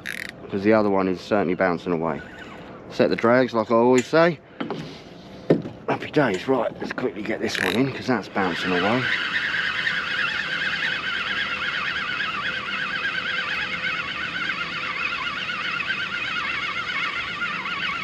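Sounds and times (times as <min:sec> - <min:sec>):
fishing reel whining: 0:00.0 - 0:00.4, 0:02.0 - 0:03.3, 0:07.4 - 0:18.0.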